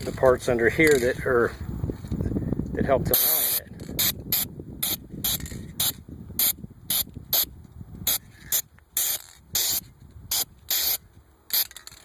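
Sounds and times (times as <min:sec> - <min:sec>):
aerosol can spraying: 0:08.1 - 0:11.0.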